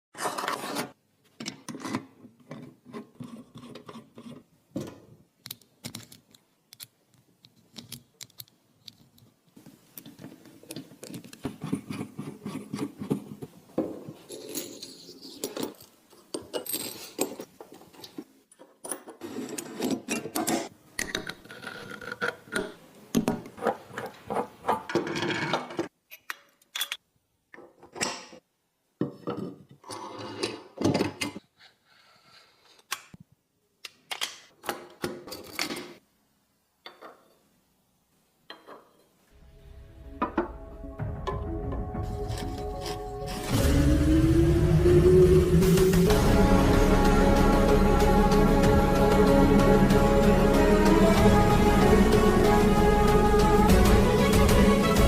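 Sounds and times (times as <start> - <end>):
small metal parts clinking: 14.3 - 17.5.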